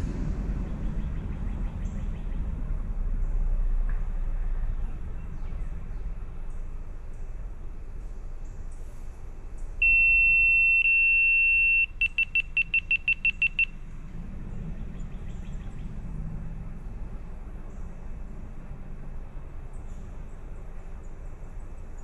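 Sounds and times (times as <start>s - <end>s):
low background rumble: 0.0s - 22.0s
electronic beeper tone: 9.8s - 13.7s
short beeps: 9.8s - 13.8s.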